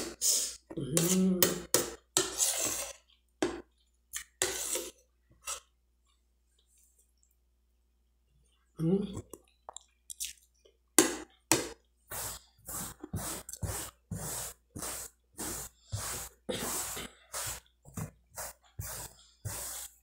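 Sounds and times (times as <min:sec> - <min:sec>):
person chewing food: 0:02.8 - 0:04.4, 0:09.2 - 0:16.4.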